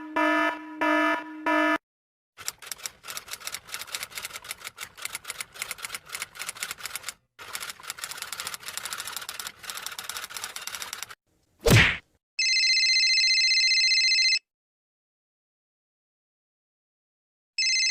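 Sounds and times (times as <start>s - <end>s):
typewriter keys clacking: 2.4s - 11.2s.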